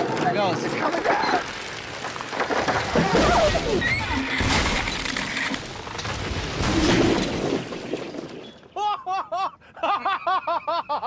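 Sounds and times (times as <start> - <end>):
wooden poles splintering and crashing: 0.0 - 8.8.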